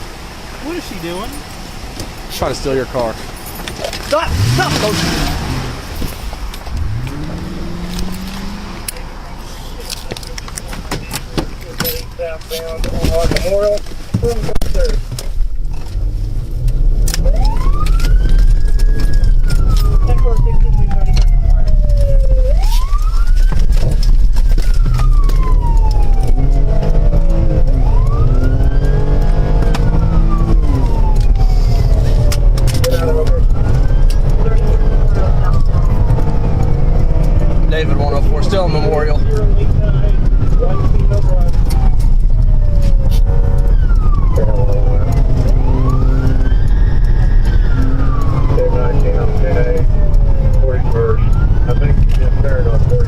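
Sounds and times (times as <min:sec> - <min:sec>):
low vehicle rumble: 0:00.0 - 0:53.0
police siren wailing: 0:04.2 - 0:10.0, 0:17.1 - 0:53.0.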